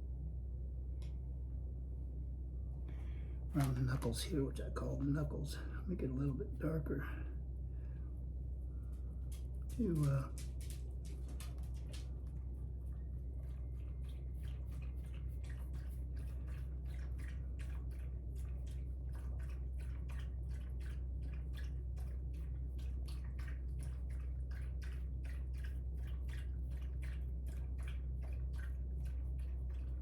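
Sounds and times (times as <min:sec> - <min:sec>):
steady low hum: 0:00.0 - 0:30.0
brush dabbing wet ticks: 0:09.2 - 0:30.0.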